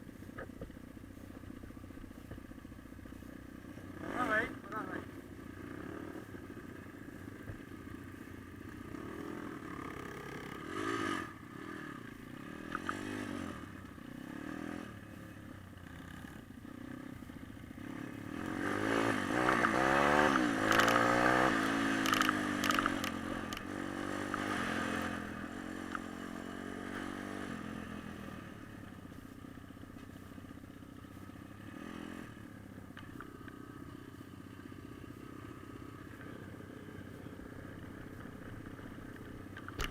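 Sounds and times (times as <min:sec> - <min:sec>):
pit bike engines revving: 0:03.1 - 0:29.2.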